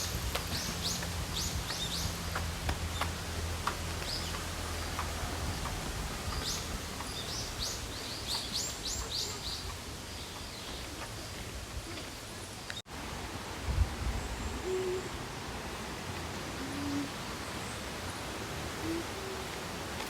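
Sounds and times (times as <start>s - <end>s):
flowing water rushing: 0.0s - 20.0s.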